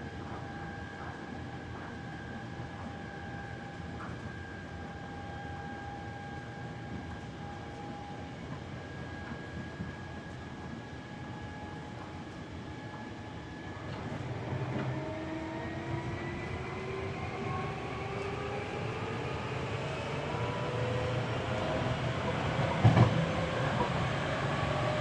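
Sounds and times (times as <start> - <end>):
electric train motor whine: 12.8 - 25.0.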